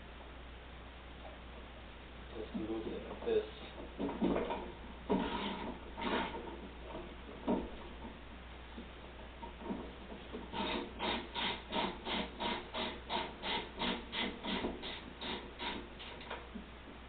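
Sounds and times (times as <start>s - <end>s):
ratchet wrench rasping: 10.5s - 16.3s.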